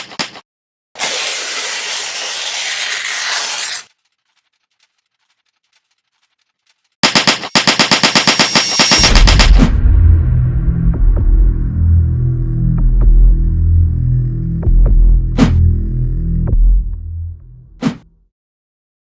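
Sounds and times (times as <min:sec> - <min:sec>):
rapid sharp bangs: 0:07.0 - 0:09.8
music with deep bass: 0:09.0 - 0:17.8.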